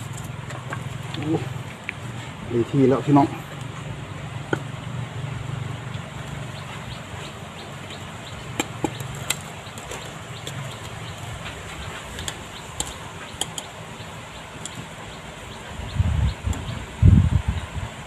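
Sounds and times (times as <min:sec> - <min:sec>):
sharp clicks and knocks: 0:07.8 - 0:13.8.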